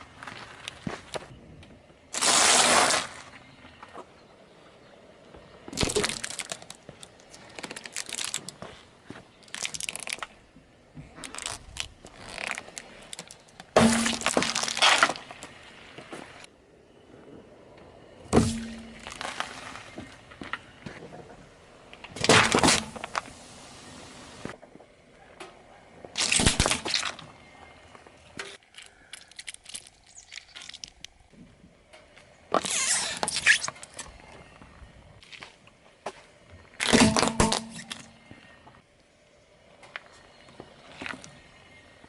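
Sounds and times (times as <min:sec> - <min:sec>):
tyre crushing brittle objects: 0:05.7 - 0:08.8, 0:09.4 - 0:10.4, 0:11.1 - 0:15.6, 0:18.3 - 0:20.0, 0:22.2 - 0:23.4, 0:26.2 - 0:27.2, 0:28.4 - 0:31.1, 0:36.8 - 0:38.2.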